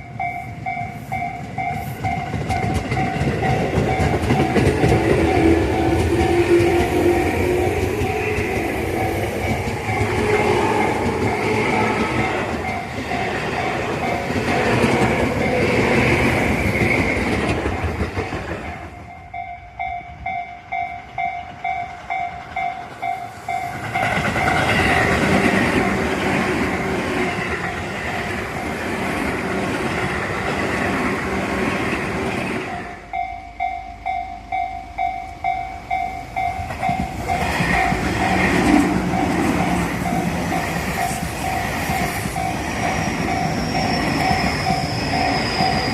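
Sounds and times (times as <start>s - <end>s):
electric trains passing: 0.0s - 45.9s
level crossing bell ringing: 32.7s - 38.4s.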